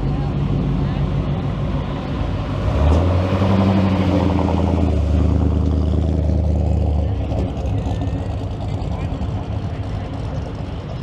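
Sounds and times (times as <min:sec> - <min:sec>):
car engine running: 0:04.5 - 0:11.0.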